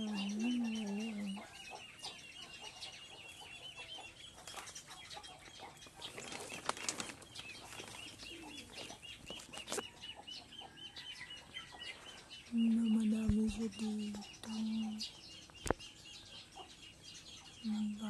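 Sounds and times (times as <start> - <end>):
small bird chirping: 0.0 - 18.0
rustling: 5.8 - 9.8.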